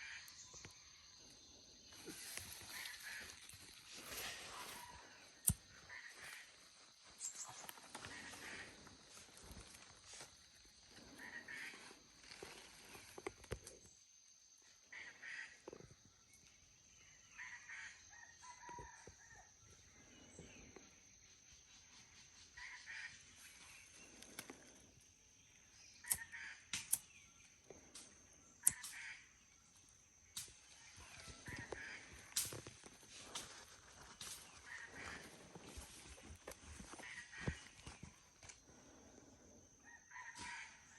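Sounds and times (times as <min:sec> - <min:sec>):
sharp clicks: 0:28.6 - 0:29.0.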